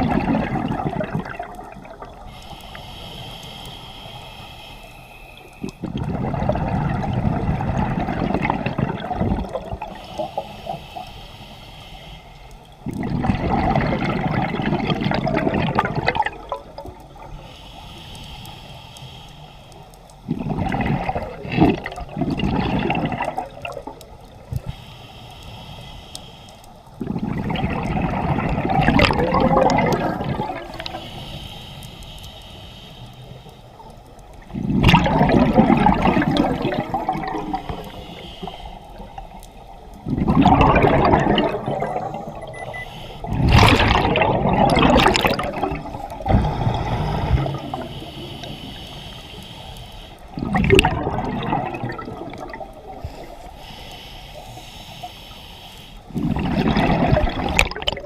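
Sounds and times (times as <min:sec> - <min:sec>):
scuba exhaled bubbles: 0:00.0 - 0:02.8, 0:05.6 - 0:10.8, 0:12.8 - 0:17.4, 0:20.2 - 0:24.7, 0:27.0 - 0:31.2, 0:34.4 - 0:49.2, 0:50.3 - 0:53.8, 0:56.1 - 0:58.0
quiet hiss: 0:00.1 - 0:13.2, 0:16.0 - 0:40.3, 0:41.4 - 0:44.6, 0:45.2 - 0:50.4, 0:52.1 - 0:56.6.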